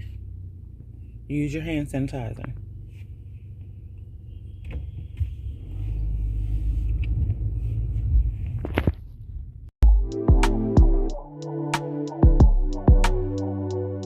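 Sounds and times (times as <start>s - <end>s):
road noise: 0.0s - 9.6s
car engine rumble: 0.0s - 9.8s.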